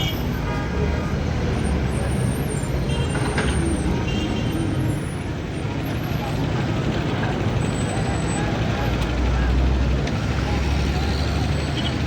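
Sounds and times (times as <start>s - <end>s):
street traffic: 0.0s - 12.0s
heavy vehicle engine rumbling: 4.8s - 12.0s.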